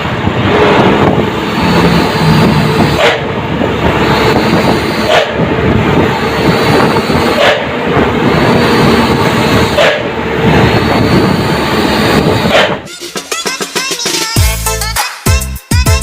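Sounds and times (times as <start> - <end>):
exhaust puffs: 0.0 - 12.9
truck engine running: 0.0 - 13.0.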